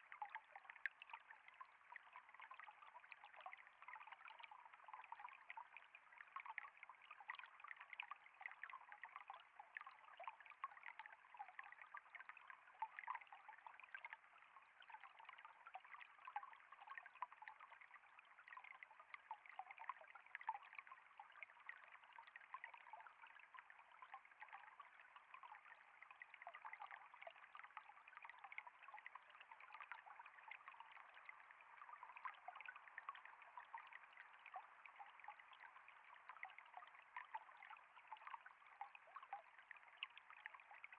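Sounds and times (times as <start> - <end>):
water trickling: 0.0 - 40.9.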